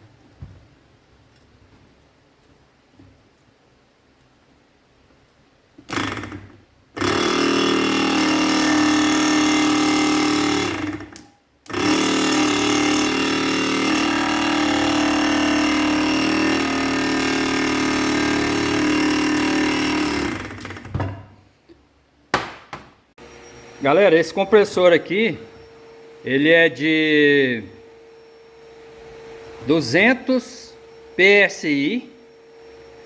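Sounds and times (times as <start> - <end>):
air compressor buzzing: 5.8 - 21.2, 23.2 - 33.0.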